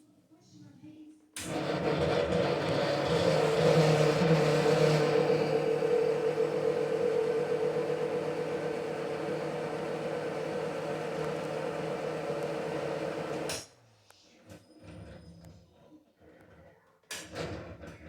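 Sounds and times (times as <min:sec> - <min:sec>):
ceiling fan humming: 0:01.5 - 0:13.5.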